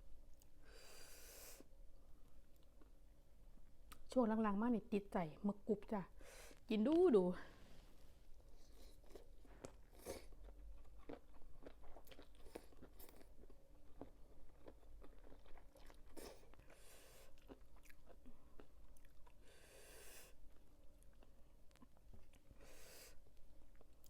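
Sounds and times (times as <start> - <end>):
crunchy chewing: 8.6 - 19.4.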